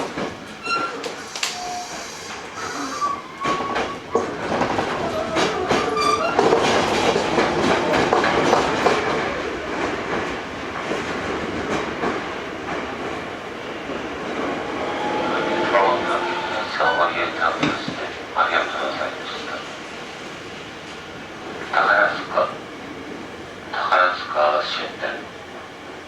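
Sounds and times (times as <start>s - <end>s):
train rumble: 0.0s - 26.0s
train wheels clattering over rail joints: 3.4s - 14.5s.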